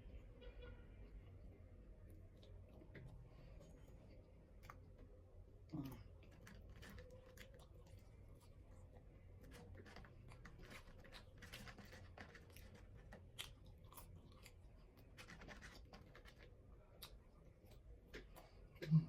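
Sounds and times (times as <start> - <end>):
person chewing food: 5.8 - 19.0.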